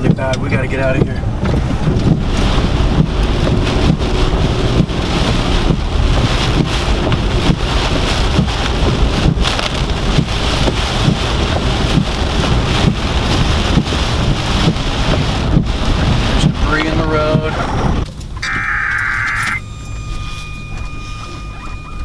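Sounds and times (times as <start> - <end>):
wind buffeting microphone: 0.0 - 18.2
heavy rain on car: 0.0 - 22.0.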